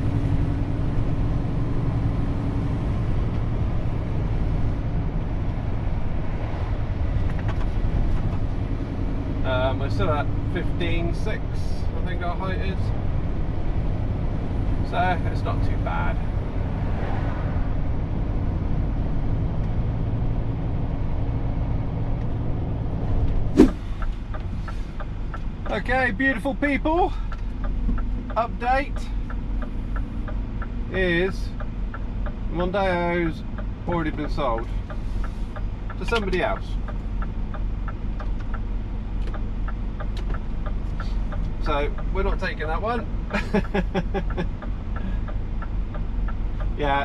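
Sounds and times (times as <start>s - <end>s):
road and tyre noise: 0.0s - 10.5s, 16.2s - 19.8s, 23.6s - 25.7s, 33.4s - 47.0s
road noise: 23.6s - 23.9s.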